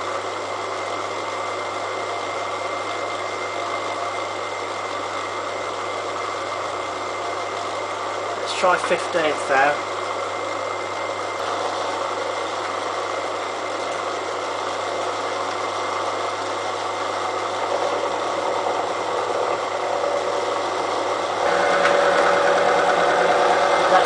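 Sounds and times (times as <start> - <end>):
milling machine cutting steel: 15.1 - 24.0.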